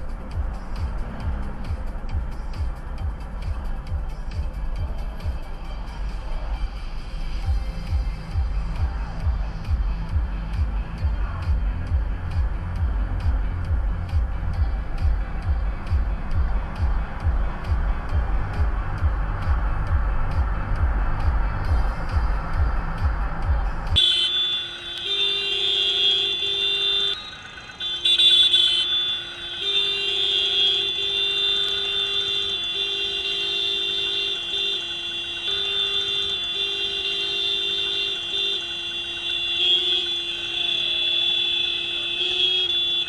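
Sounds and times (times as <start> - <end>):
vehicle horn blaring: 23.9 - 43.0.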